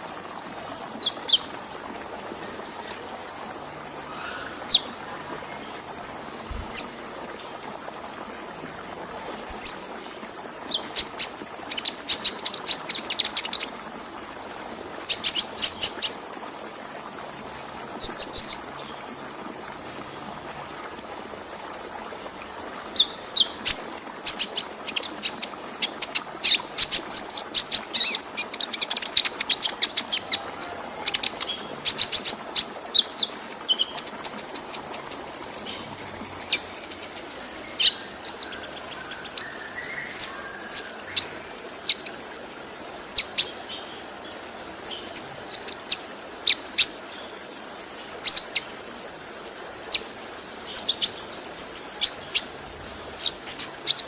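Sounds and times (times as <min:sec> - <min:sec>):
waterfall hiss: 0:00.0 - 0:54.0
bird chirping and trilling: 0:24.3 - 0:42.0.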